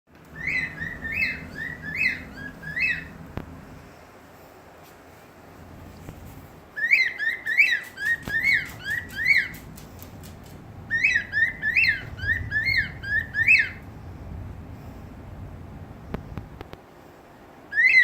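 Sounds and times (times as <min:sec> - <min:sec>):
cockatiel whistling: 0:00.3 - 0:03.2, 0:06.8 - 0:09.6, 0:10.9 - 0:13.8, 0:17.7 - 0:18.0.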